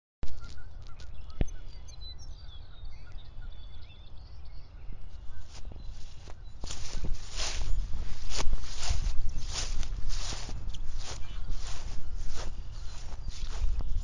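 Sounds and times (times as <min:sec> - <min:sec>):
small birds chirping: 0:00.2 - 0:14.0
rustling: 0:05.4 - 0:14.0.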